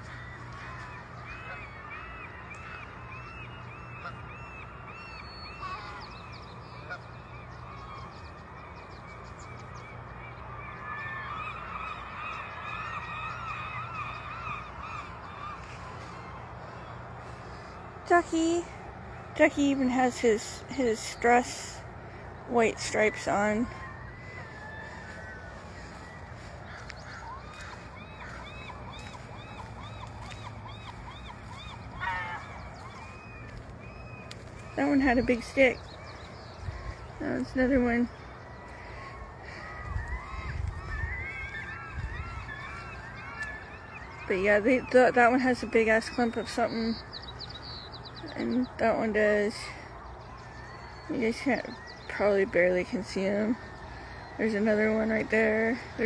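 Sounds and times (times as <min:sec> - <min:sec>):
geese honking: 0:00.0 - 0:56.0
low background hum: 0:00.0 - 0:56.0
harsh bird call: 0:19.4 - 0:56.0.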